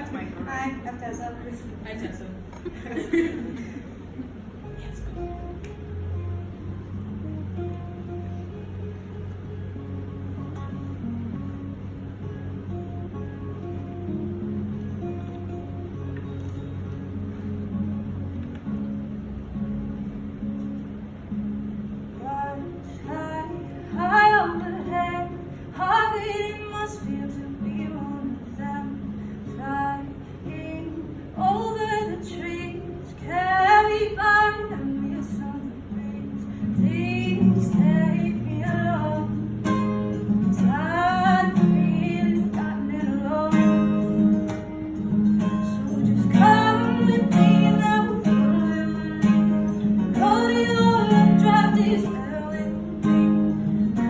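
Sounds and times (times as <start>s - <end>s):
acoustic guitar: 0.0s - 54.0s
woman singing: 22.2s - 44.7s, 45.3s - 54.0s.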